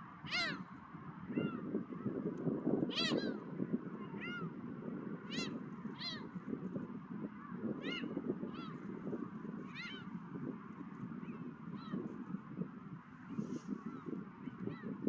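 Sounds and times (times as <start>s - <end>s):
gulls calling: 0.0s - 2.2s, 2.9s - 6.5s, 7.2s - 12.1s.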